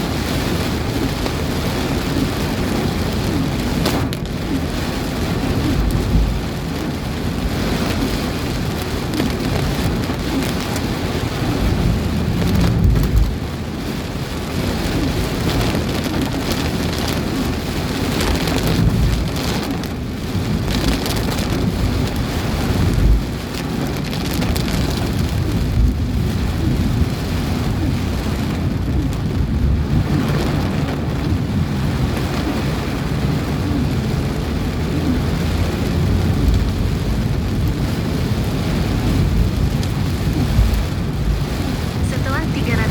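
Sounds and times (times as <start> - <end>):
heavy rain falling: 0.0 - 42.9
low rumbles: 0.0 - 42.9
strong wind: 0.0 - 42.9.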